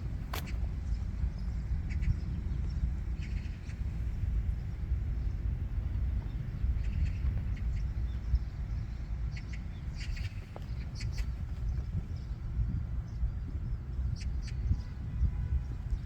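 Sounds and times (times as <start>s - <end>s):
small birds chirping: 0.0s - 15.0s
steady low rumble: 0.0s - 16.0s.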